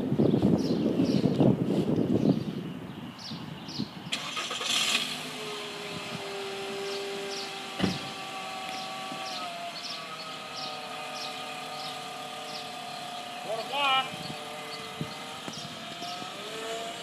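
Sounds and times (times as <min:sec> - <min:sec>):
car engine running with whine: 0:04.1 - 0:17.0.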